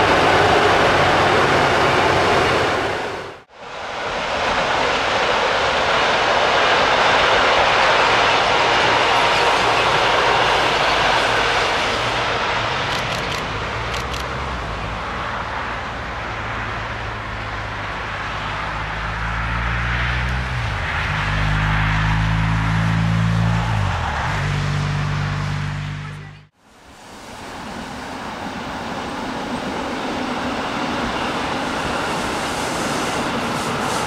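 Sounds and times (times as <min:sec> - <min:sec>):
train wheels rumbling on rails: 0:00.0 - 0:15.1, 0:27.5 - 0:34.0
sharp clicks: 0:12.9 - 0:14.3.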